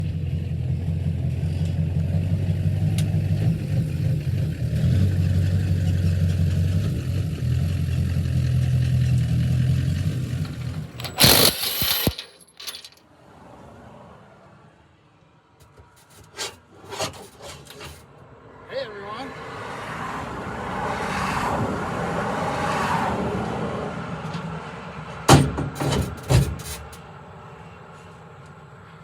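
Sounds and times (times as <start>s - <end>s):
brief loud clatter: 10.4s - 13.0s.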